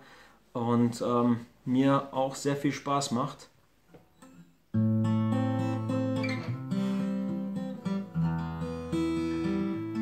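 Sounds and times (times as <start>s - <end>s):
acoustic guitar chords: 4.2s - 10.0s.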